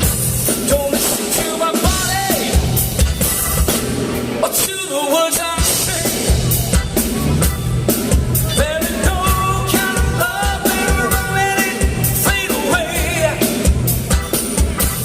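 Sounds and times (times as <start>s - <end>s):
drum kit beat: 0.0s - 15.0s
live rock band playing: 0.0s - 15.0s
person singing: 0.6s - 2.8s, 8.4s - 13.8s.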